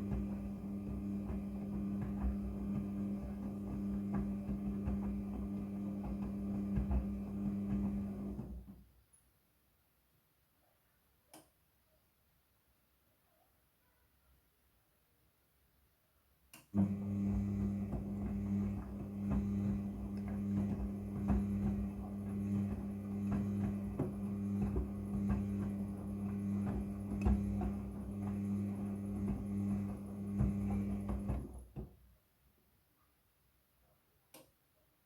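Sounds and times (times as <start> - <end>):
washing machine motor hum: 0.0 - 8.8, 16.8 - 31.9.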